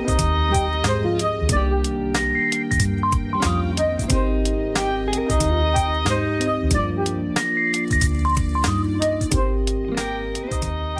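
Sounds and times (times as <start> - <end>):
bass line: 0.0 - 10.9.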